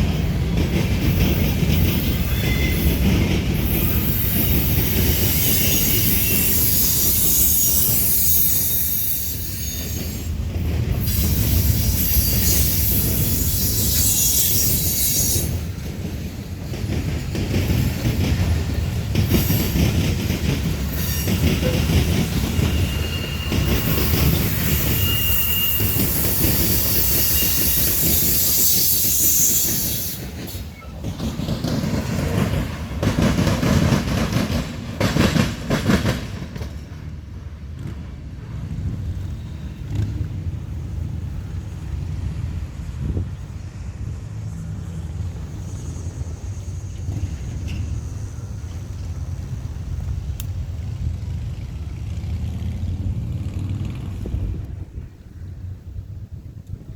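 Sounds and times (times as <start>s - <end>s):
train wheels rumbling and clacking: 0.0s - 56.9s
high wheel squeal: 1.5s - 10.4s, 11.0s - 15.8s, 20.8s - 31.2s, 44.9s - 50.0s.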